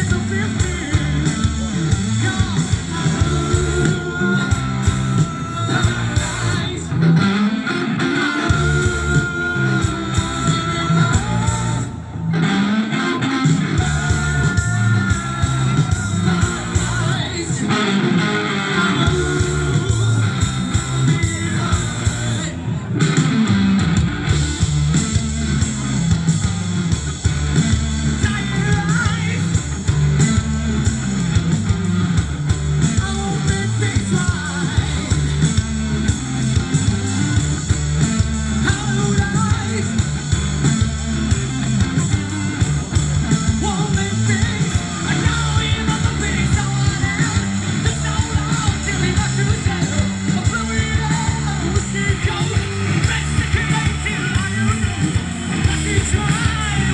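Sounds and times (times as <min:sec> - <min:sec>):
person singing: 0:00.0 - 0:23.3, 0:32.8 - 0:35.8, 0:38.2 - 0:40.3, 0:41.8 - 0:56.9
live rock band playing: 0:00.0 - 0:56.9.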